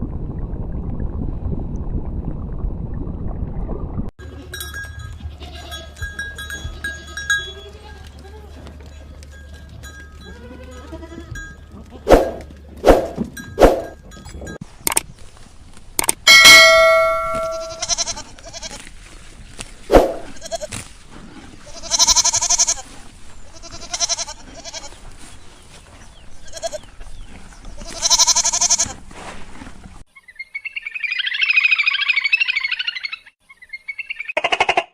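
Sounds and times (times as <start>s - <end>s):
bell ring: 4.5s - 7.8s, 16.3s - 18.0s
animal bleating: 5.2s - 6.0s, 6.6s - 8.8s, 10.2s - 12.1s, 17.4s - 18.8s, 20.2s - 20.8s, 21.6s - 22.9s, 23.5s - 25.0s, 26.4s - 26.9s, 27.8s - 29.0s.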